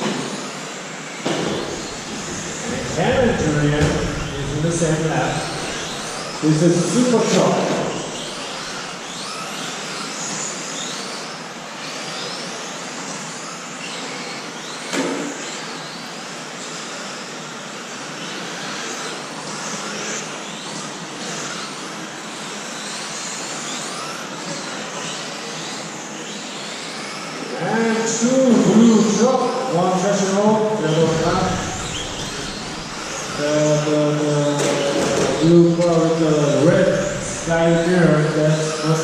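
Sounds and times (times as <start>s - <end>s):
electric motors whining: 0.0s - 39.0s
tyre and drivetrain noise: 1.3s - 9.7s, 30.7s - 39.0s.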